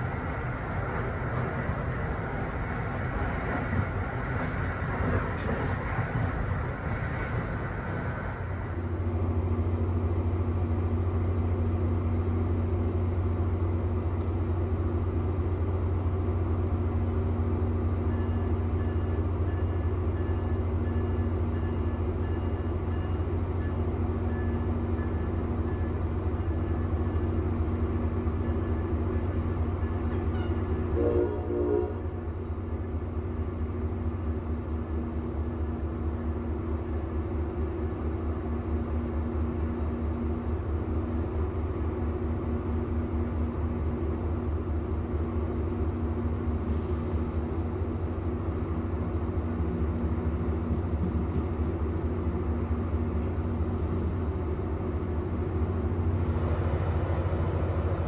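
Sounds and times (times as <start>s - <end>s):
train low hum: 0.0s - 58.0s
train horn: 29.8s - 32.3s.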